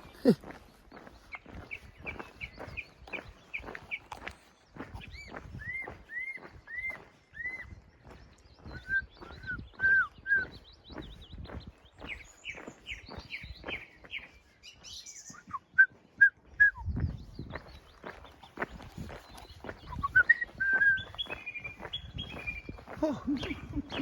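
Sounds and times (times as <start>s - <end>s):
footsteps on a path: 0.0s - 24.0s
songbird singing: 0.0s - 24.0s.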